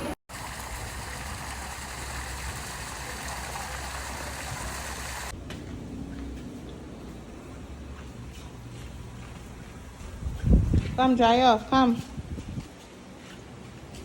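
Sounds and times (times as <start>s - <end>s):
rushing water: 0.0s - 5.4s
wind rumble on microphone: 9.8s - 12.8s.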